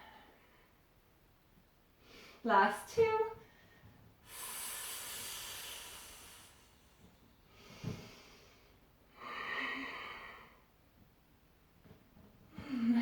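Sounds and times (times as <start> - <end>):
woman hissing exhales: 4.2 - 6.9.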